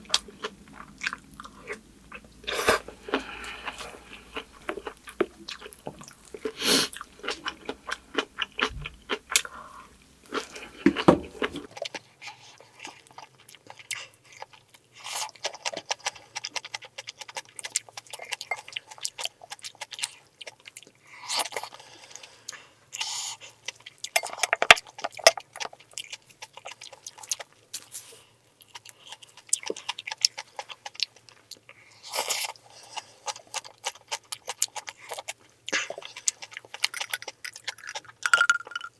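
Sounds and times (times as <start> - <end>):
chewing and crunching food: 0.0 - 38.9.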